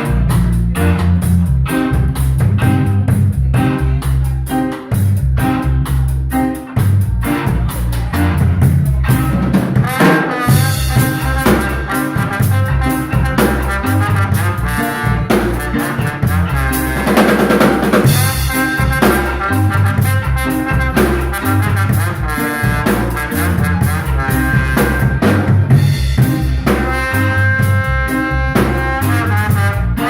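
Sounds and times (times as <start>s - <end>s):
bass drum: 0.0s - 30.0s
live band music: 0.0s - 30.0s
snare drum hits and rimshots: 9.4s - 14.6s, 15.3s - 27.4s.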